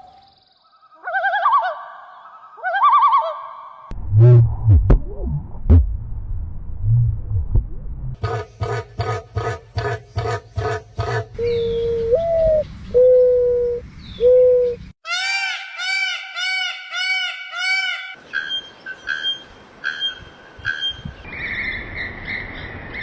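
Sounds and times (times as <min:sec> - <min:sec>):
rapid repeated bird notes: 0:08.2 - 0:11.7.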